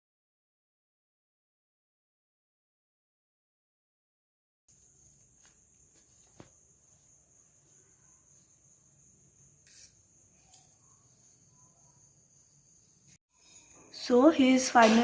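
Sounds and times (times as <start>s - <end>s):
crickets chirping: 4.7s - 15.0s.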